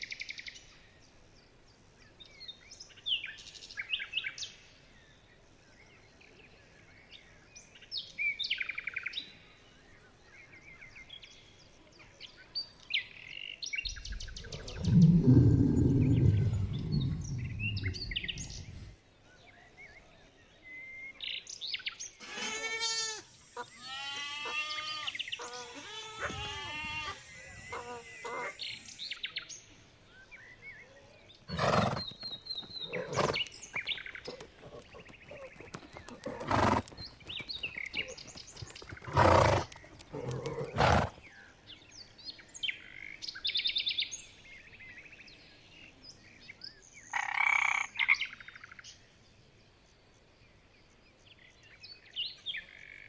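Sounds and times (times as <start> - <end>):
rapid chirping animal calls: 31.5 - 41.2.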